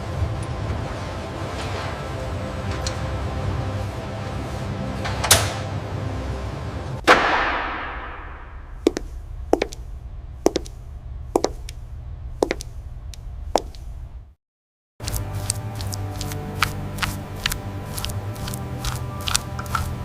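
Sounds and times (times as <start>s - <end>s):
loud metallic hit: 7.0s - 8.9s
low steady hum: 7.7s - 14.3s.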